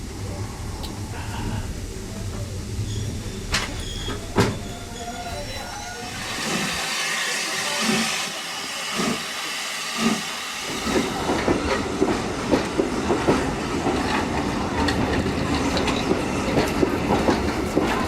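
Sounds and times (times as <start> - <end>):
steam hissing: 5.9 - 18.0
steam engine chuffing: 6.1 - 18.0
train wheels clattering: 8.9 - 18.0.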